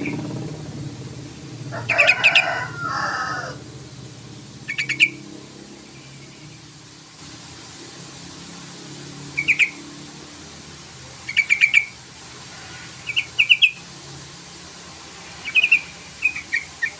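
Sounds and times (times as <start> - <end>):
bird calling bubbly notes: 0.0 - 3.6, 4.3 - 6.6, 9.3 - 10.1, 11.2 - 12.0.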